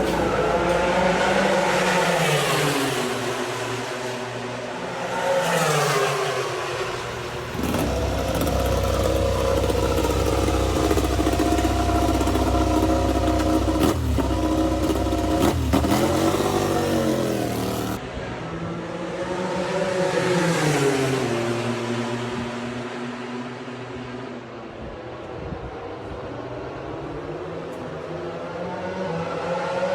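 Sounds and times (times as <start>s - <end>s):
racing motorcycle engines revving: 0.0s - 18.0s.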